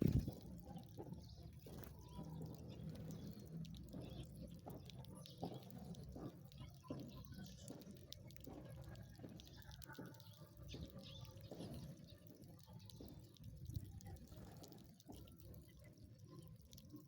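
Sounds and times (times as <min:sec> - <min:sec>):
sparrow chirps: 0:08.9 - 0:13.6.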